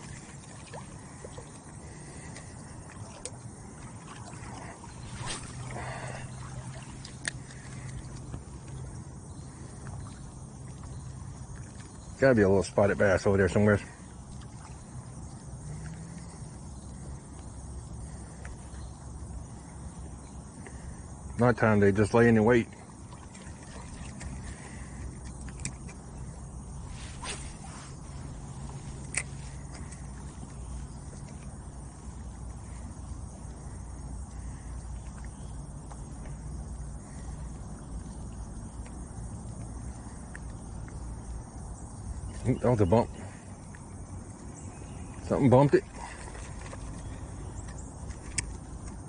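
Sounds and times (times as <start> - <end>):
faint insect chirring: 0.0 - 49.0
faint ticks: 29.0 - 42.5.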